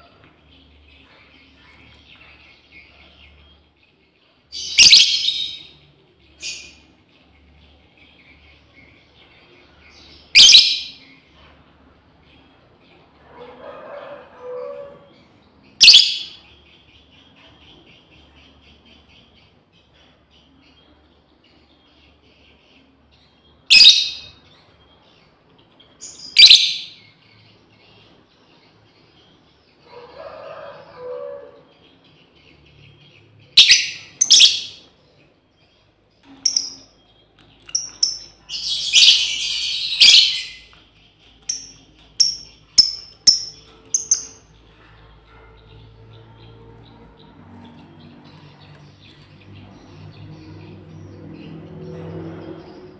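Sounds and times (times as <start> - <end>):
lovebird chirps: 4.5 - 5.8, 10.1 - 11.1, 23.7 - 24.4, 26.0 - 27.1, 33.6 - 34.9, 36.2 - 44.5.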